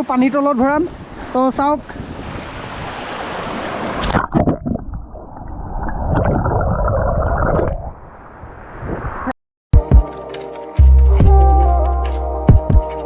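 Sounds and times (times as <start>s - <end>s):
open-air water noise: 0.0s - 9.3s
underwater gurgling and rumbling: 3.7s - 9.1s.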